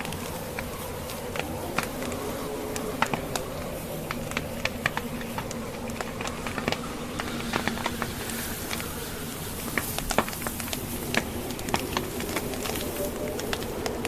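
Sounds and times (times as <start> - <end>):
blizzard wind rushing: 0.0 - 14.0
logs crackling in fireplace: 0.0 - 14.0.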